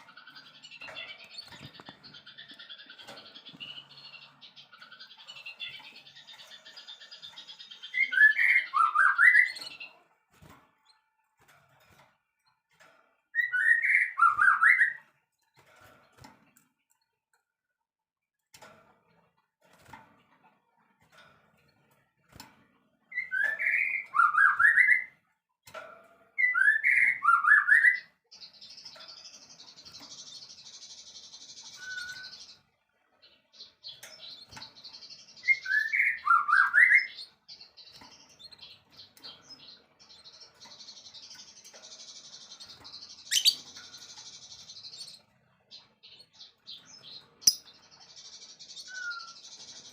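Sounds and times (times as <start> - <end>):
songbird whistled notes: 31.7 - 32.4, 35.4 - 37.2, 48.8 - 49.4.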